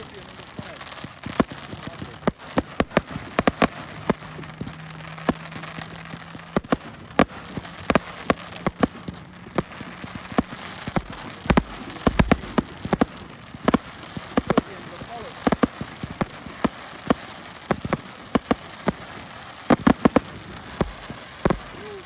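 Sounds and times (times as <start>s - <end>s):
fireworks bursting: 0.0s - 22.0s
steady hiss: 0.0s - 22.0s.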